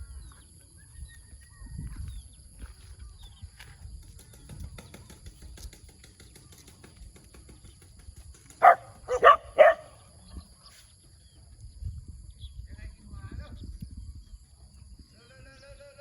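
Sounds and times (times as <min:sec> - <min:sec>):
puppy barking: 0:08.6 - 0:10.0.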